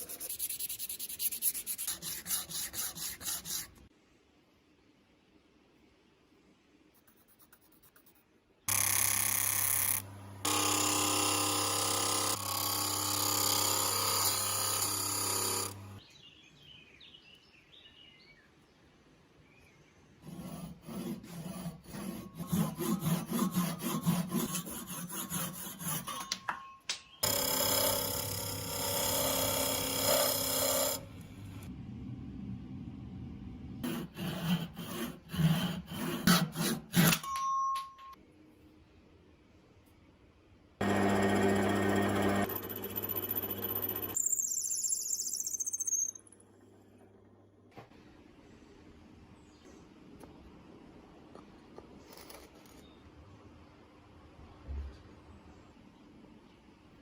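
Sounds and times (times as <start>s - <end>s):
rubbing and scraping strokes: 0.0s - 3.8s
electric tool running on metal: 8.7s - 16.0s, 27.2s - 31.6s, 40.8s - 44.2s.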